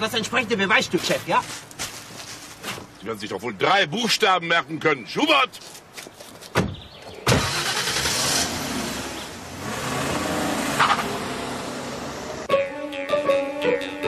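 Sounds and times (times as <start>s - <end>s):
car engine starting and running: 7.2s - 12.5s.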